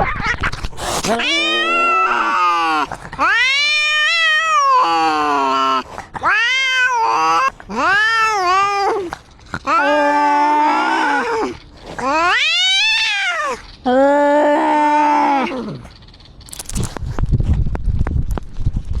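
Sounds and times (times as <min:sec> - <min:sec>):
cat meowing: 0:00.0 - 0:13.7.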